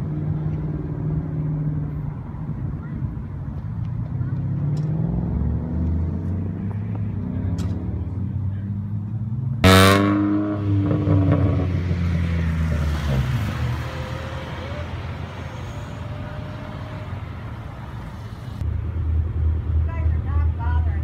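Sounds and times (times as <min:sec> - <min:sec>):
car engine revving: 0:04.0 - 0:18.6.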